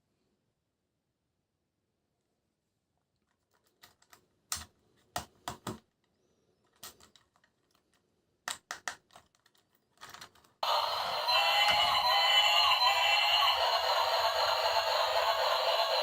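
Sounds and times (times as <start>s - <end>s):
plastic clicks and clacks: 3.2s - 10.6s.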